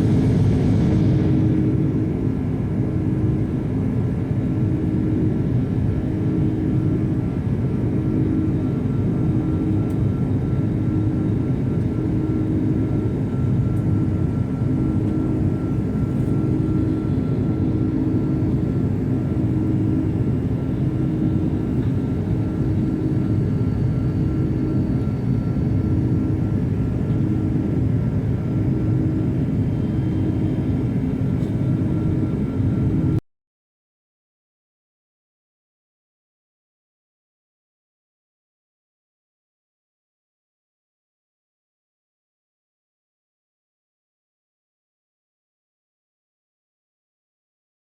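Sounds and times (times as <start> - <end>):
jet engines rumbling: 0.0 - 33.2.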